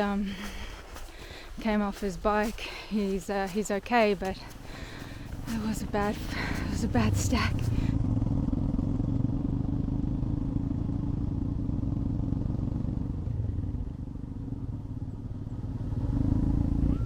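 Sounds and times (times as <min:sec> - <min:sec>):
motorcycle engine running: 0:04.3 - 0:17.0.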